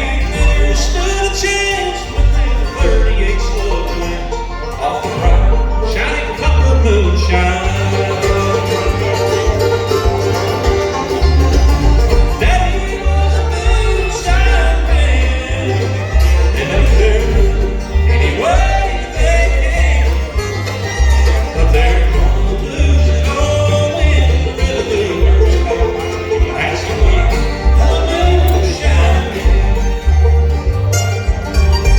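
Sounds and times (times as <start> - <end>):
banjo: 0.0 - 31.9
bass line: 0.0 - 31.9
fiddle: 0.0 - 31.9
guitar: 0.0 - 31.9.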